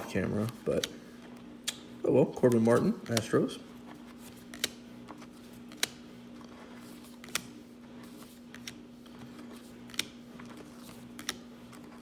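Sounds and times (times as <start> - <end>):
steady low hum: 0.0 - 12.0
trading cards shuffling: 0.0 - 12.0
sharp card clicks: 1.6 - 3.4, 4.2 - 4.9, 5.6 - 6.1, 7.0 - 7.6, 9.6 - 11.6.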